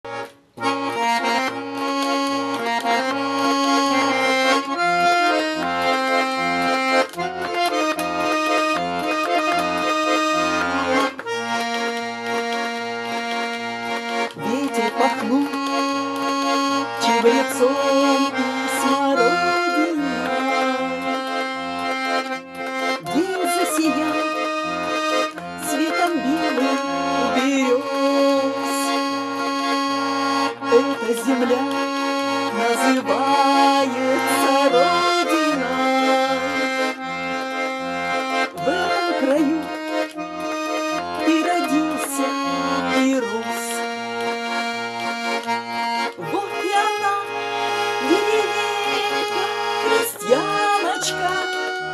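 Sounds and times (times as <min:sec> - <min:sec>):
accordion bass notes pumping: 0:00.0 - 0:51.9
accordion melody: 0:00.0 - 0:51.9.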